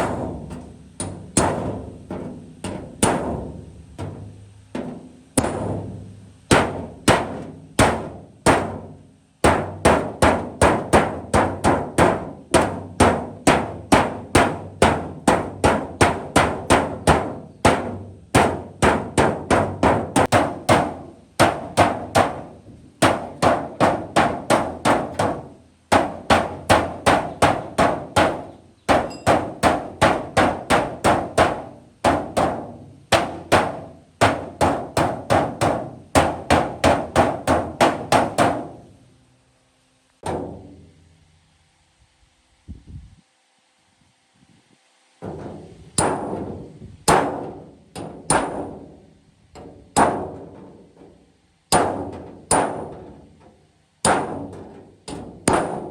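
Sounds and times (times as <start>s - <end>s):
hammer ringing on sheet metal: 4.8s - 38.9s, 46.0s - 49.0s, 49.6s - 51.0s, 51.7s - 53.3s, 54.0s - 55.9s.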